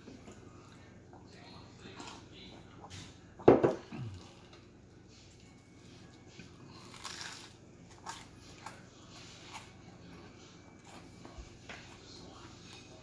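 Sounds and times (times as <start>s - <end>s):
person chewing and biting: 6.3s - 11.3s.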